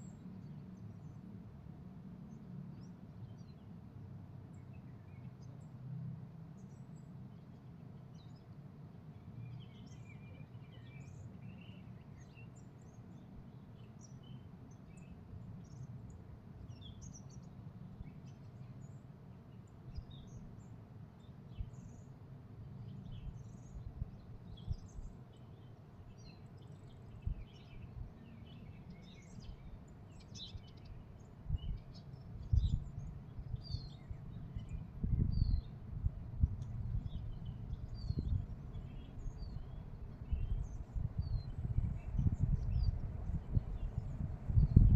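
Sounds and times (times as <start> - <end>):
small birds chirping: 6.6 - 44.9
steady low rumble: 31.5 - 44.9.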